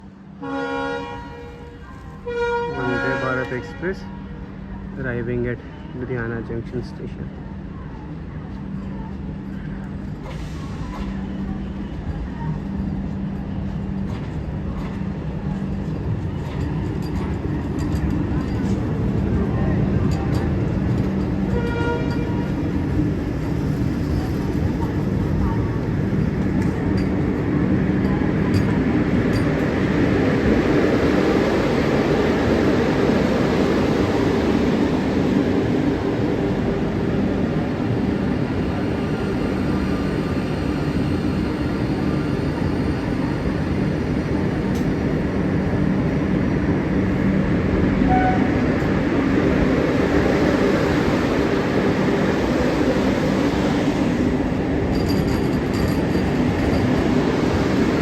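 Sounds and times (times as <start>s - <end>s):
train rumbling on rails: 0.0s - 58.0s.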